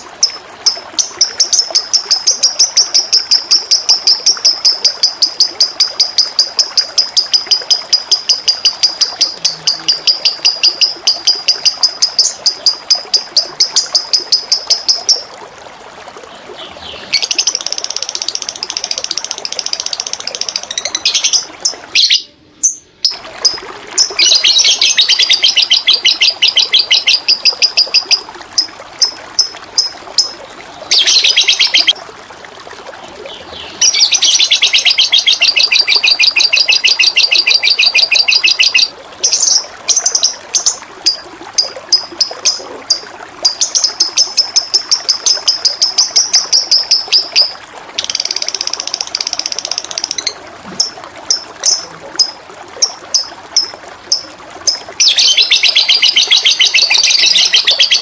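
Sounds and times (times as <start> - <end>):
flowing water: 0.0 - 58.0
songbird trilling: 20.0 - 23.2, 24.0 - 28.2, 30.9 - 32.0, 33.8 - 40.8, 55.0 - 58.0.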